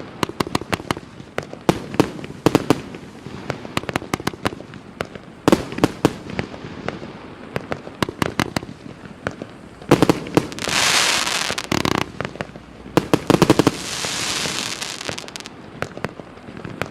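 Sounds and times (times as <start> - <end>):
firework bangs: 0.0 - 16.9
loud firework hiss: 0.0 - 16.9.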